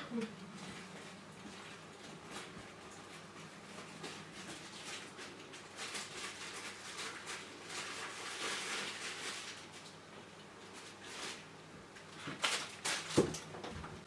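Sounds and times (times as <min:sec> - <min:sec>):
rustling and scratching: 0:00.5 - 0:10.0, 0:10.6 - 0:14.0.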